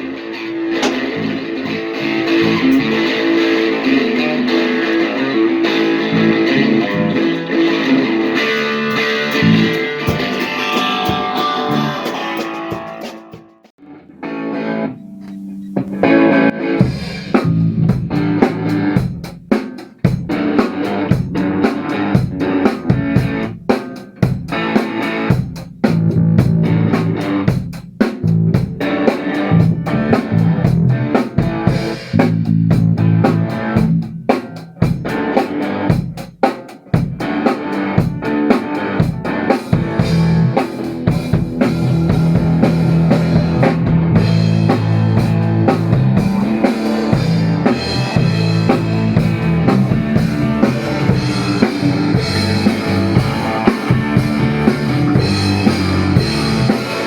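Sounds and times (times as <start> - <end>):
drum kit playing rock beat: 0.0 - 13.7, 15.3 - 57.0
electric guitar: 0.0 - 57.0.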